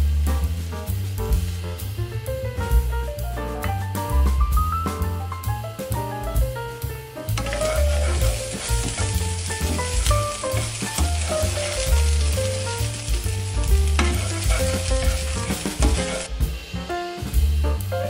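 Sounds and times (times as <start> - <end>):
background music with bass: 0.0 - 18.0
food sizzling in butter: 7.3 - 16.5
spatula scraping a pot: 7.4 - 16.3.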